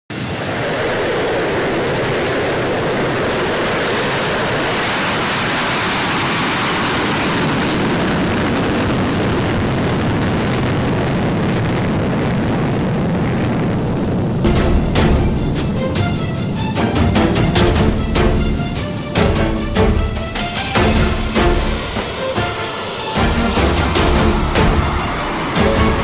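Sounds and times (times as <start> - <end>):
jet engine roar: 0.1 - 26.0
deep hit: 14.4 - 26.0
music: 14.4 - 26.0.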